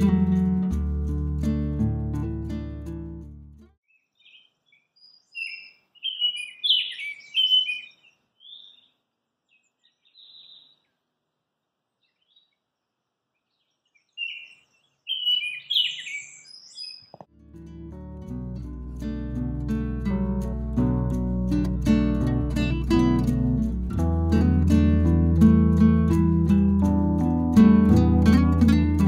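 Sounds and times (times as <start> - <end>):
bird singing: 3.8 - 11.0, 11.9 - 17.2.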